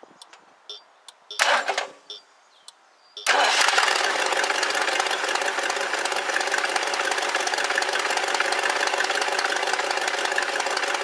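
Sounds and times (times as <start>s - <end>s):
car engine idling: 3.2s - 11.0s.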